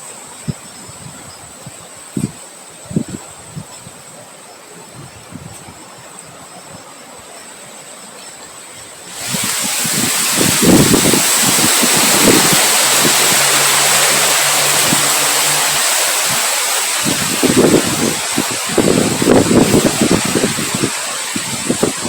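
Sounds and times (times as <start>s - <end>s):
wind blowing: 9.1s - 22.0s
wind buffeting microphone: 9.1s - 22.0s.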